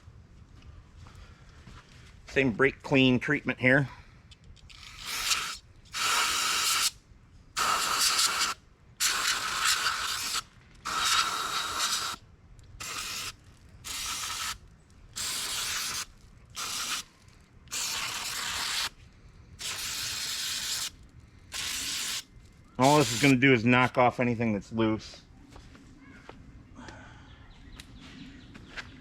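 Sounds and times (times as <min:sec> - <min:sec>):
aerosol can spraying bursts: 0:04.8 - 0:07.0, 0:07.6 - 0:12.2, 0:12.8 - 0:14.6, 0:15.2 - 0:17.1, 0:17.7 - 0:19.0, 0:19.6 - 0:23.4.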